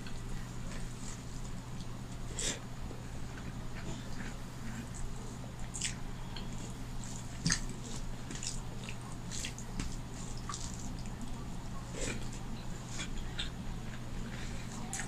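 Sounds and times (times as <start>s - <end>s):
steady low hum: 0.0s - 15.0s
wet chewing and mouth smacks: 5.6s - 11.4s.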